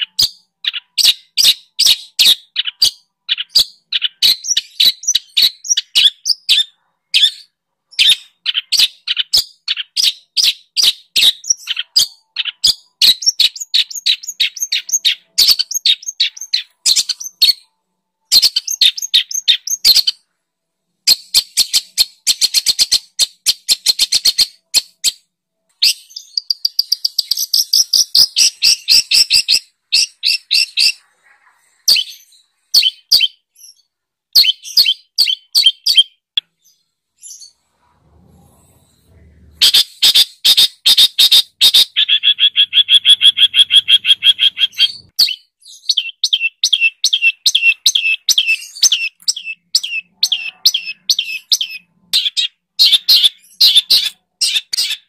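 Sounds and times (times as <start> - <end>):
songbird rapid high chirps: 39.7 - 55.0.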